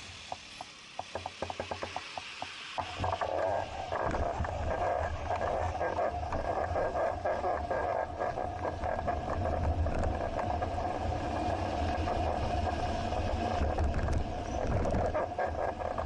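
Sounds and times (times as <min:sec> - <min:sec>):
wind rumble: 0:02.8 - 0:16.0
bicycle rattles and clicks: 0:05.7 - 0:16.0.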